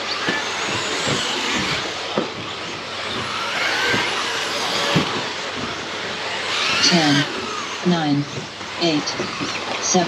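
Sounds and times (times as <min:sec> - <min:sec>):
electric motors whining: 0:00.0 - 0:10.0
tyre and drivetrain noise: 0:00.0 - 0:10.0
sharp knocks of trucks landing: 0:00.2 - 0:06.8.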